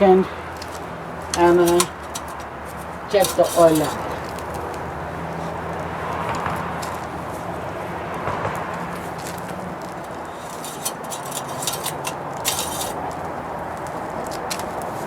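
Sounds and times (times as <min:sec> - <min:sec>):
dipstick clicks and scrapes: 0:00.6 - 0:04.8, 0:08.9 - 0:15.0.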